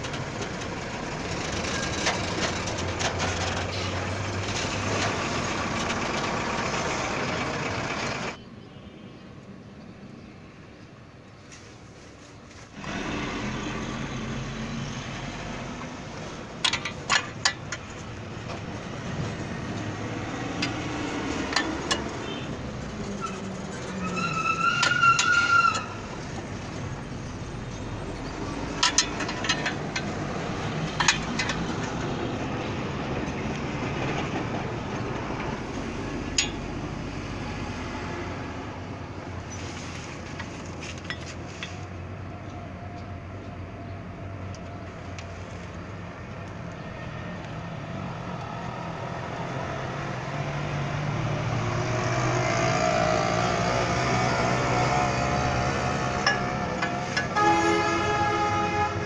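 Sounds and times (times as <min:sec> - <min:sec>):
workshop din: 0:12.7 - 0:43.1, 0:53.8 - 0:59.0.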